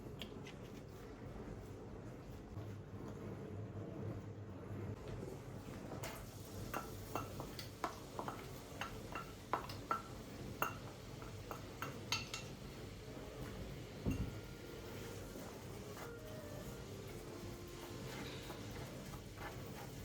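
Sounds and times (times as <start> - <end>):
dishes and utensils clinking: 6.6 - 12.7, 14.0 - 14.5.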